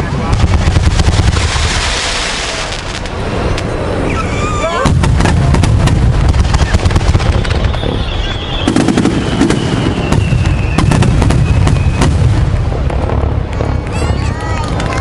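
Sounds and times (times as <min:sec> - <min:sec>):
continuous rumble: 0:00.0 - 0:15.0
fireworks bangs and crackles: 0:00.0 - 0:15.0
high descending whistle: 0:06.6 - 0:12.0.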